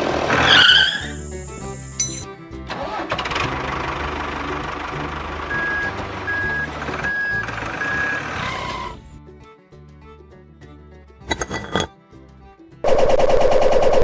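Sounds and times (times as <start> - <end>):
background music: 0.1 - 12.9
truck engine running: 2.7 - 8.8.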